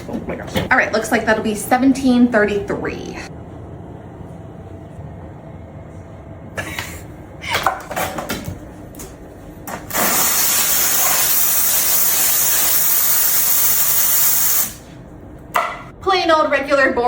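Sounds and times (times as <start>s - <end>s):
coffee machine steam hiss: 9.8s - 14.8s.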